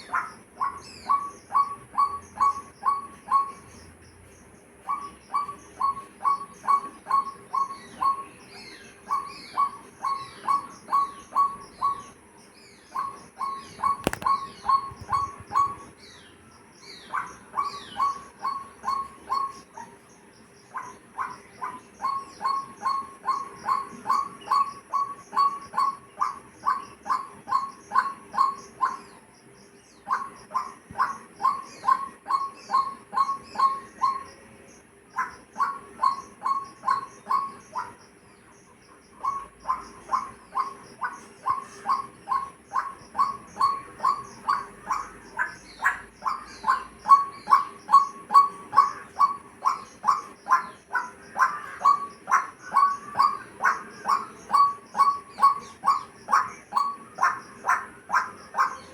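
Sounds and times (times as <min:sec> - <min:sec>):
faint high bird chirps: 0:00.0 - 0:58.9.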